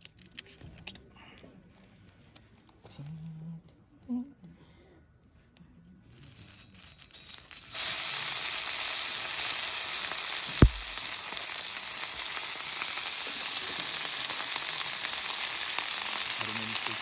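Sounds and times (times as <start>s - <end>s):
meat sizzling on steel griddle: 7.6s - 17.0s
dull thump: 10.6s - 11.0s.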